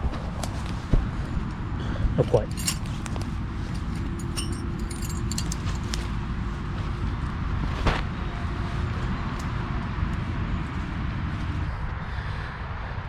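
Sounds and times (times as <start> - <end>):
road traffic rumble: 0.0 - 13.0
camping gear clinking: 2.2 - 7.4.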